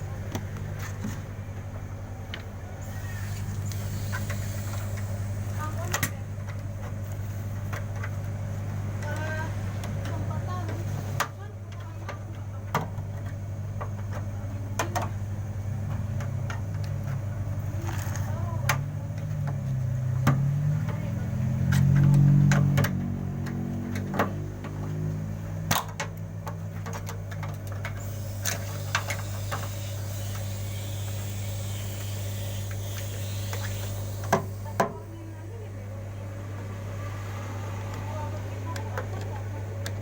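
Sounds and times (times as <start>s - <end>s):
washing machine humming: 0.0s - 40.0s.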